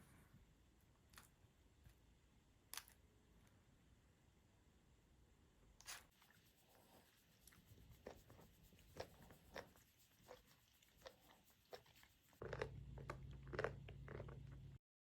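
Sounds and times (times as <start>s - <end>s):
steady low hum: 6.2s - 14.8s
faint clicks and crunching ticks: 7.4s - 14.8s.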